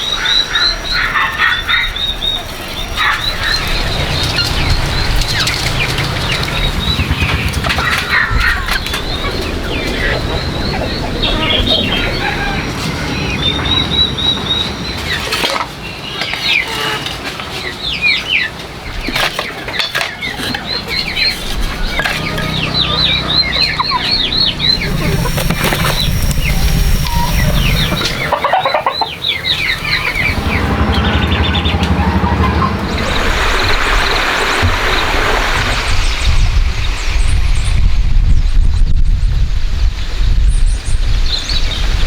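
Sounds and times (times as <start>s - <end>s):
chickens peeping and chirping: 0.2s - 15.6s, 17.9s - 35.0s
low steady rumble: 3.2s - 15.1s, 20.5s - 34.7s.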